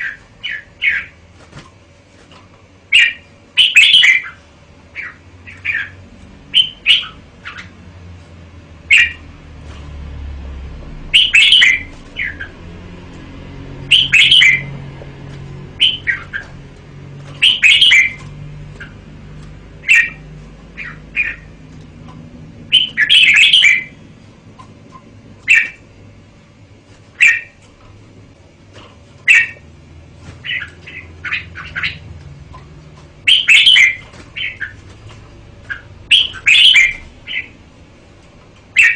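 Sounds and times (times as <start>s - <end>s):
bulbul singing warbled phrases: 2.9s - 7.8s, 8.8s - 9.3s, 11.0s - 12.7s, 13.7s - 14.8s, 15.6s - 19.0s, 19.7s - 21.6s, 22.6s - 24.1s, 25.4s - 25.8s, 27.2s - 27.6s, 29.2s - 29.7s, 30.4s - 32.2s, 33.2s - 34.9s, 35.6s - 37.6s.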